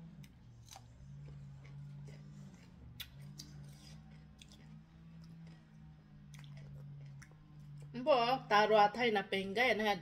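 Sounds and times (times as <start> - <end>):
steady low hum: 0.0 - 10.0
chewing with mouth clicks: 0.1 - 8.0.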